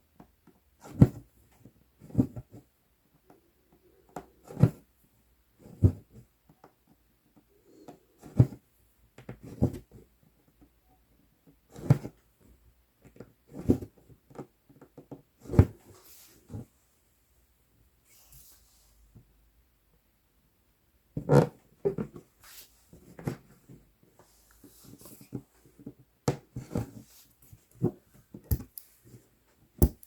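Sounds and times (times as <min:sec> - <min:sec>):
needle tapping through fabric: 0:28.5 - 0:28.9.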